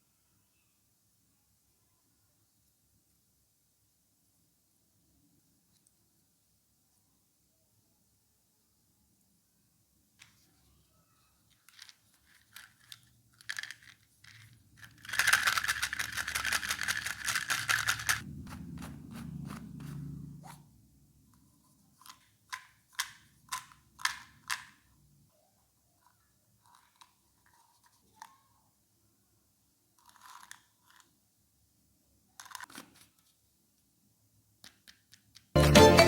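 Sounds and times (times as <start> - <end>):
rapid crackling: 15.0 - 19.6
low rumble: 18.2 - 20.5.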